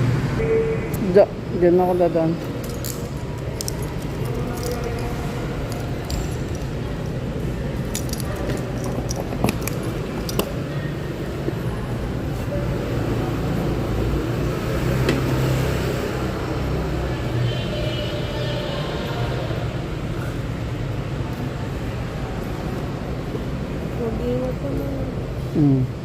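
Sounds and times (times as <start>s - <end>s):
road and wind noise: 0.0s - 26.0s
light metallic clicks and jingles: 2.4s - 7.2s.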